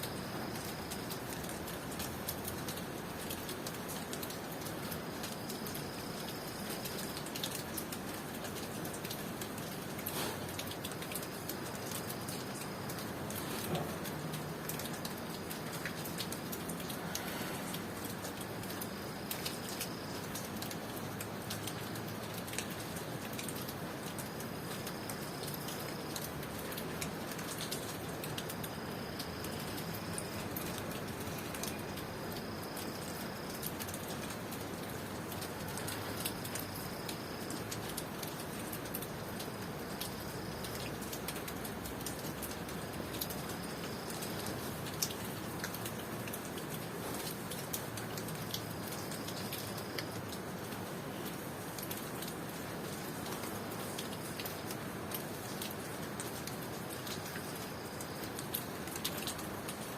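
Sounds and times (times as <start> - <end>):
cricket trilling: 0.0 - 2.6, 3.9 - 23.4, 24.0 - 45.8
rain falling: 0.0 - 59.9
raindrops tapping: 0.0 - 59.9.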